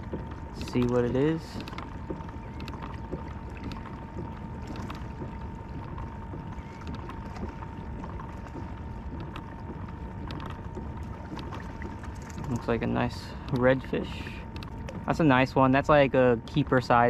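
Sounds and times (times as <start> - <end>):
faint steady whine: 0.0 - 17.0
water splashing: 0.0 - 17.0
light clicks: 14.4 - 15.0.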